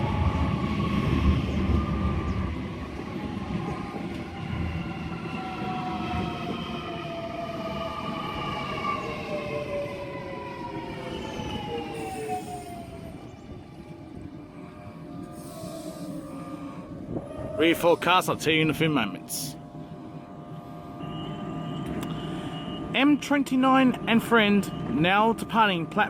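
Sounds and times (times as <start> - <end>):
train rumble: 0.0 - 26.0
traction motor whine falling: 18.0 - 26.0.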